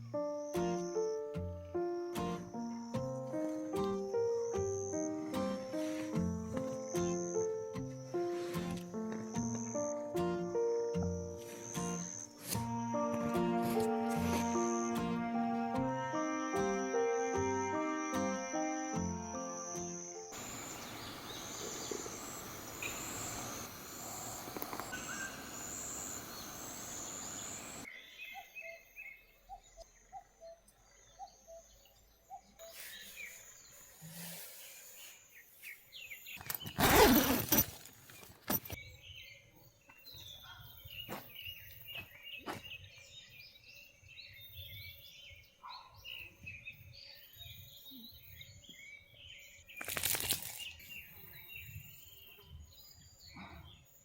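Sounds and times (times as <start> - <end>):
insects chirping: 0.0 - 32.0, 32.6 - 38.8
birds calling and chirping: 19.7 - 54.0.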